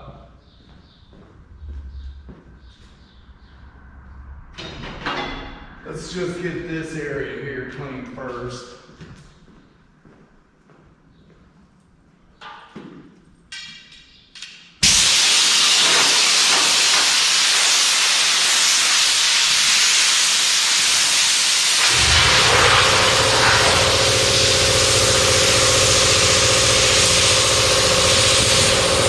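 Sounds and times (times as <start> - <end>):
short air blasts: 14.8 - 29.0
motor humming: 21.8 - 29.0
rush of blown air: 21.8 - 29.0.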